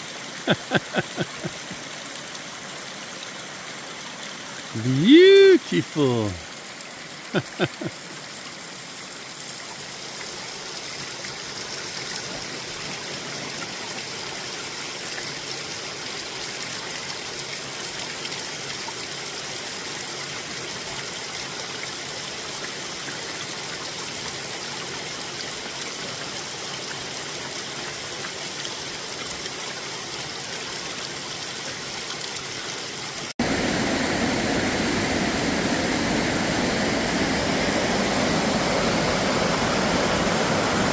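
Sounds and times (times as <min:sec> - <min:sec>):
stream water rushing: 0:00.0 - 0:40.9
loud steady rushing noise: 0:33.4 - 0:40.9.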